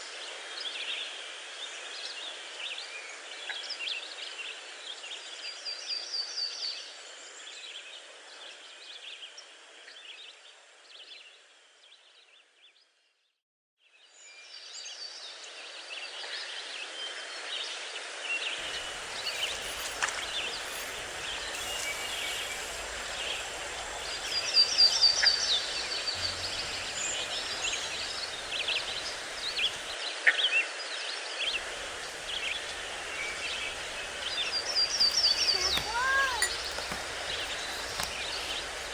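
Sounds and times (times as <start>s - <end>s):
small birds singing: 18.6s - 30.0s, 31.5s - 38.9s.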